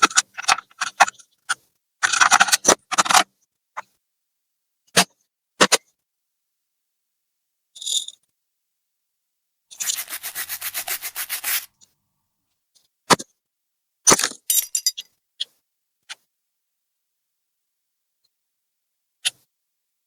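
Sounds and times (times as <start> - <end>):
laptop parts clicking: 0.0 - 1.2, 2.0 - 3.2
scrubbing on a hard surface: 9.8 - 11.7.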